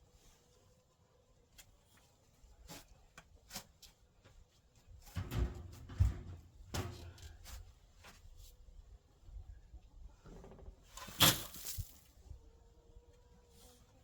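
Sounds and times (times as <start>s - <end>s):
heavy thuds: 5.2s - 7.4s
shovel scraping dirt: 11.0s - 12.0s.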